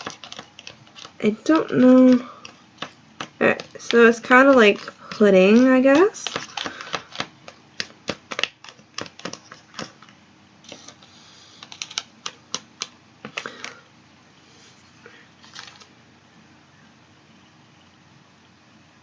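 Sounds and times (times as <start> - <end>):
plastic spoon clicking on tray: 0.0 - 10.0.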